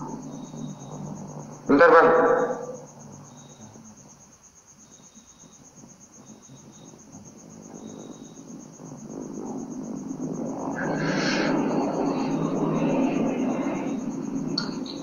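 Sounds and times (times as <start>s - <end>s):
cricket chirping: 0.0s - 15.0s
rush of noise: 7.6s - 15.0s.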